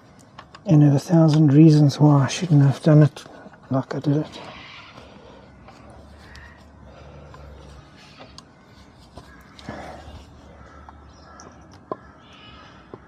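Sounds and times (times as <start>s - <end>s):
low steady hum: 0.0s - 13.0s
small clicks and taps: 0.1s - 0.7s, 10.6s - 12.1s.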